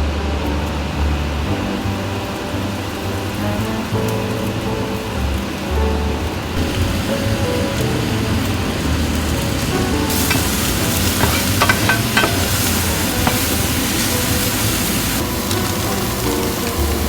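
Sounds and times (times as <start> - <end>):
filling sizzling in a pan: 0.4 - 17.0
utensil clinking against pan: 10.1 - 15.2.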